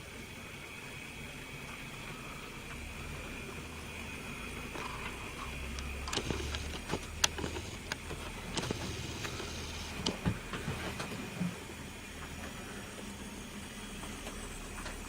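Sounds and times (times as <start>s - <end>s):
model train motor hum: 0.0s - 12.0s.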